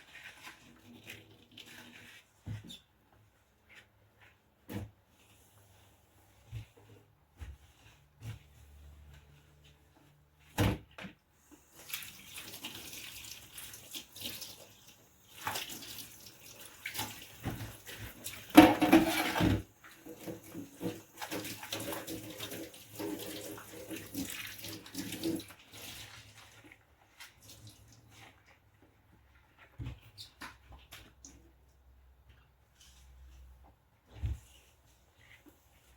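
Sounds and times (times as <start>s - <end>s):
tap water running: 11.5s - 28.1s.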